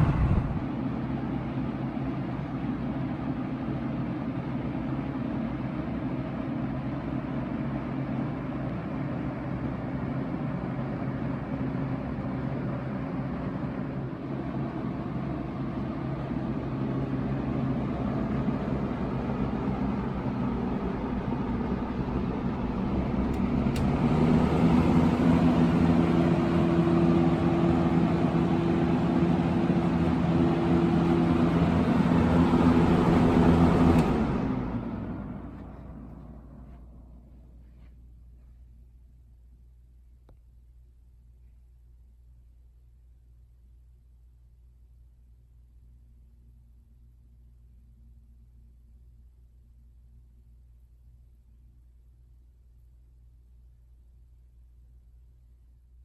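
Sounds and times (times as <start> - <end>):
box fan humming: 15.2 - 37.6
fan switch click: 32.6 - 34.2.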